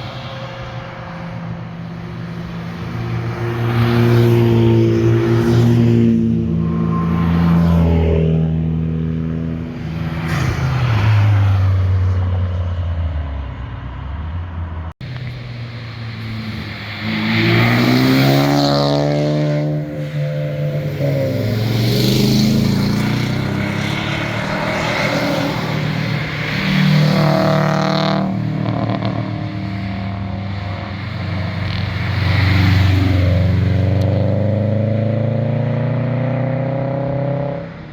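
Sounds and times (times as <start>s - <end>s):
cars accelerating past: 0.0s - 37.9s.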